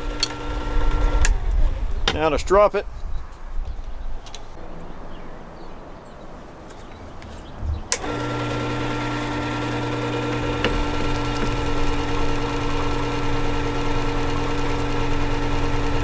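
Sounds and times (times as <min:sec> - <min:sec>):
electric sharpener motor hum: 0:00.0 - 0:01.3, 0:06.5 - 0:16.0
handling noise: 0:04.2 - 0:16.0.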